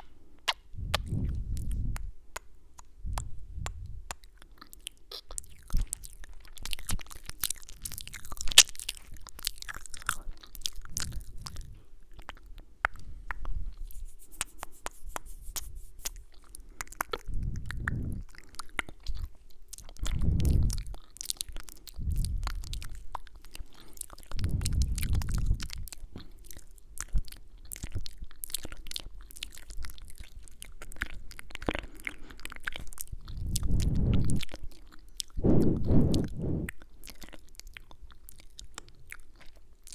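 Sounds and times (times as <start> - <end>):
wet mouth clicks and kisses: 0.0 - 6.0
low muffled swells: 33.4 - 34.5, 35.4 - 36.7.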